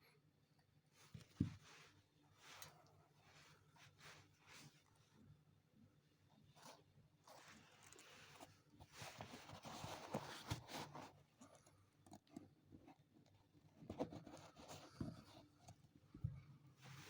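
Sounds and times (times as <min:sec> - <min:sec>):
scratching and rubbing on leather: 0:06.6 - 0:11.6.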